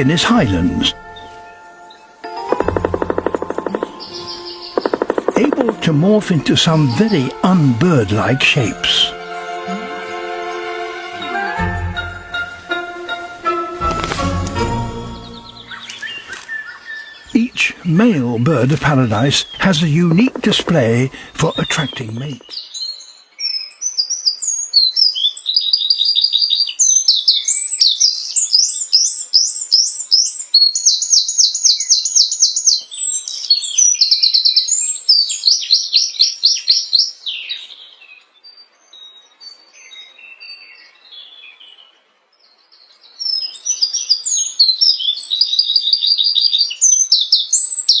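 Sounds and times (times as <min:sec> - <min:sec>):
bird singing with trills: 0:00.0 - 0:11.8, 0:15.1 - 0:29.7.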